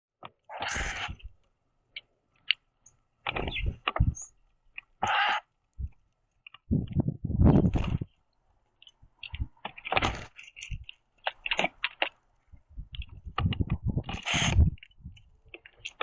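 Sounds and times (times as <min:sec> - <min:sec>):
birds rustling and thumping: 0:03.2 - 0:08.2, 0:08.8 - 0:16.0
clicks and knocks on wood: 0:12.8 - 0:16.0.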